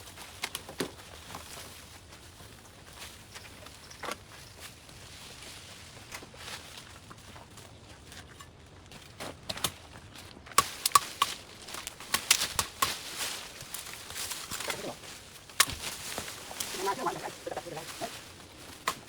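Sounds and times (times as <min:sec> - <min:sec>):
sharp chops cutting brush: 0:10.6 - 0:13.8, 0:15.5 - 0:16.3.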